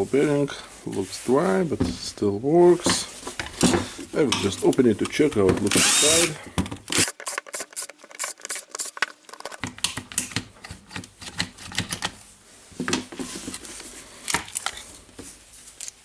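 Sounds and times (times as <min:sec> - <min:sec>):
small plastic and metal parts clicking: 0:07.0 - 0:09.6.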